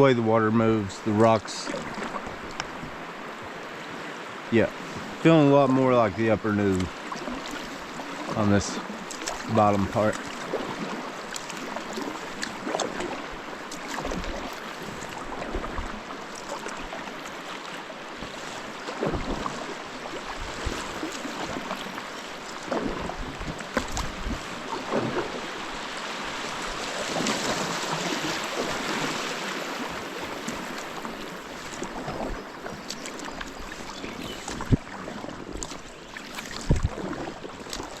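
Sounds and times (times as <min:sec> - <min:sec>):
paddle splashes: 0:00.0 - 0:38.0
river current rushing: 0:00.0 - 0:38.0.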